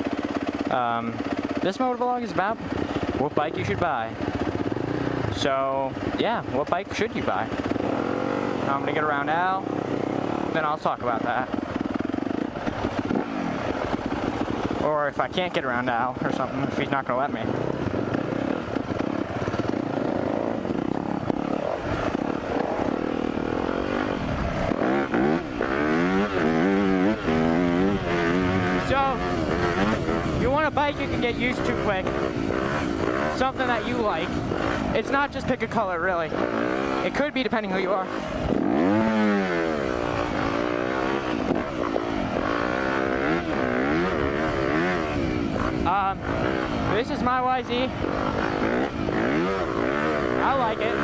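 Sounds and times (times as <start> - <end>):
dirt bike engine revving: 0.0 - 51.0
wind noise: 17.5 - 36.5.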